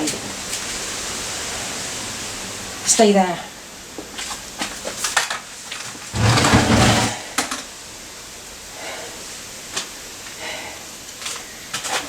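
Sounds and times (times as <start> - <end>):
loud scraping rumble: 6.2 - 7.2.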